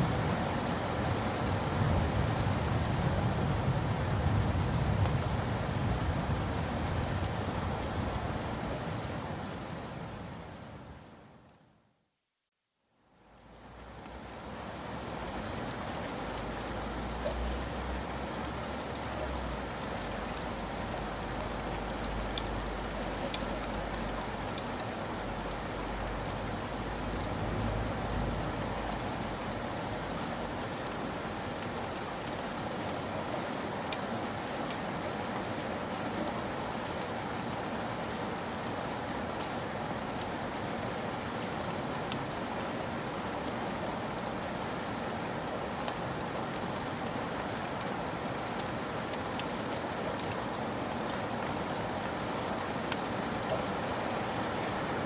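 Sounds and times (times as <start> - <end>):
steady rain: 0.0 - 55.0
raindrop ticks: 20.1 - 27.4.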